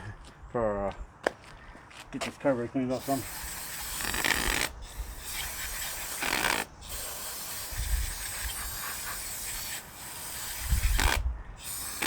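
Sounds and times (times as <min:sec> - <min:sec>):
aerosol spray hissing bursts: 0:03.0 - 0:12.0.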